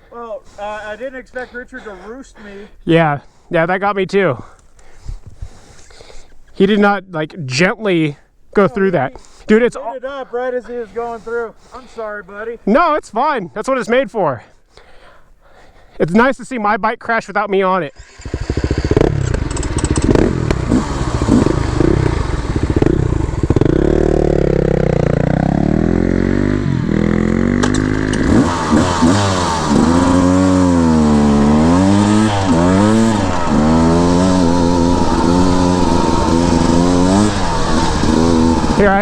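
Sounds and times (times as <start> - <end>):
dirt bike engine revving: 18.0 - 39.0.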